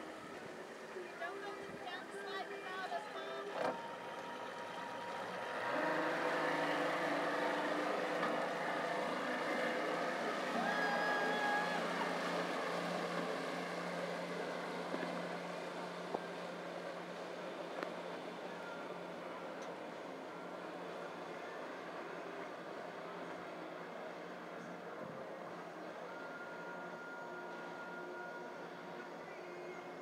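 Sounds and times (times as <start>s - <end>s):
speedboat engine running: 0.0s - 23.8s.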